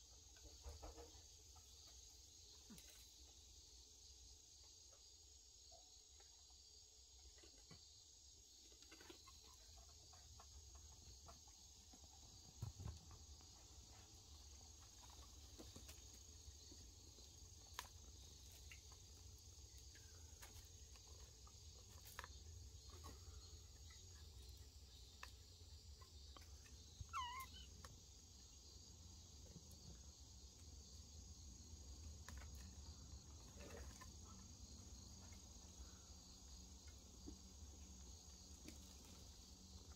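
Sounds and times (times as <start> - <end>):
crickets chirring: 0.1 - 39.9.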